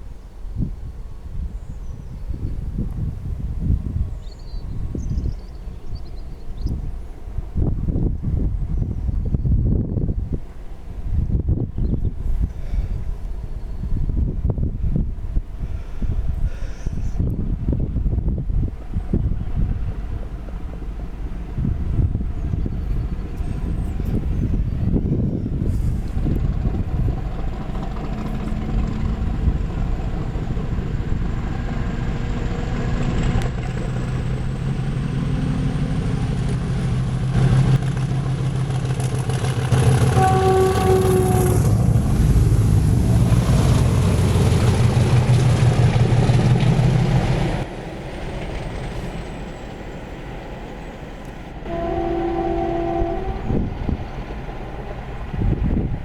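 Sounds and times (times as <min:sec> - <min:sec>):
diesel locomotive engine running hard: 0:12.2 - 0:56.0
locomotive horn: 0:39.7 - 0:44.5, 0:51.6 - 0:54.1.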